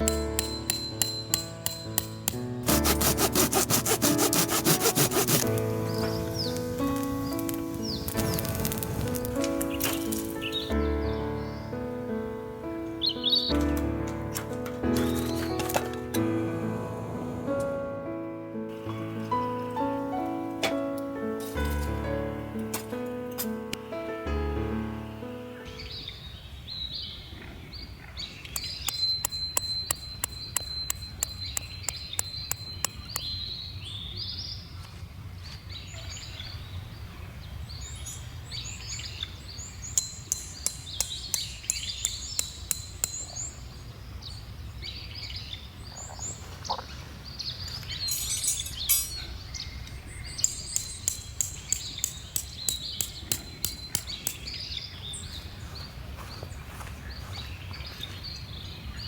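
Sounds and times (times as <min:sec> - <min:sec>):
small birds chirping: 0:02.7 - 0:11.9, 0:25.4 - 0:59.0.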